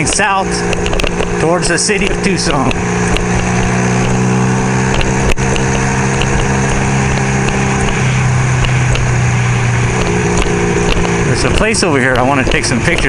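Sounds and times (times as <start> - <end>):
sharp click: 0.0 - 1.3, 4.9 - 8.0, 10.0 - 13.0
motorcycle engine cruising: 0.0 - 13.0
wind rumbling on microphone: 2.6 - 13.0.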